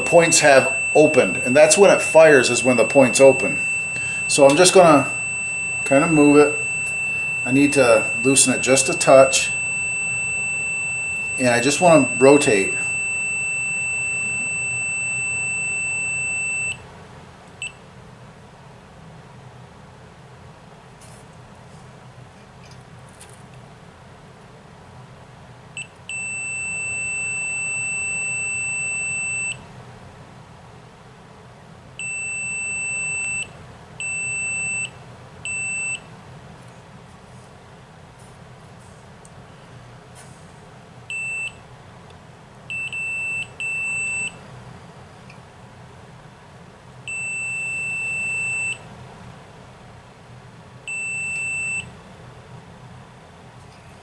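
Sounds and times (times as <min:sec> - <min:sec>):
multimeter beeping: 0:00.0 - 0:16.8, 0:25.8 - 0:29.6, 0:32.0 - 0:36.1, 0:41.1 - 0:41.6, 0:42.7 - 0:44.4, 0:47.1 - 0:48.9, 0:50.9 - 0:51.9.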